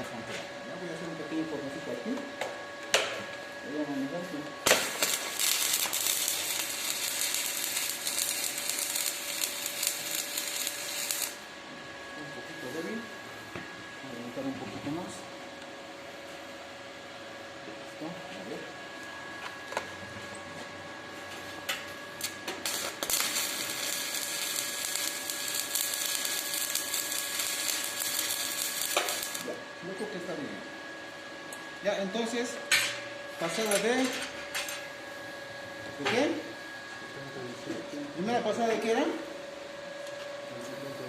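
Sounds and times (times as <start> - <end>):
welding arc crackling: 4.6 - 11.5, 21.7 - 29.6.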